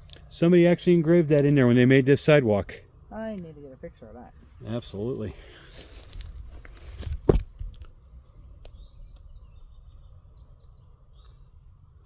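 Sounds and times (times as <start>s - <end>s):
dull thump: 6.9s - 7.8s.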